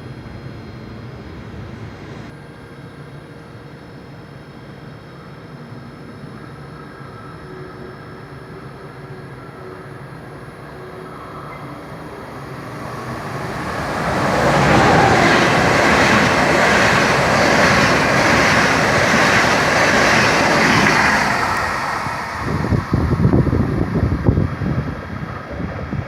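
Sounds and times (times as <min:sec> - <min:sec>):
train wheels rushing on rails: 0:11.7 - 0:26.0.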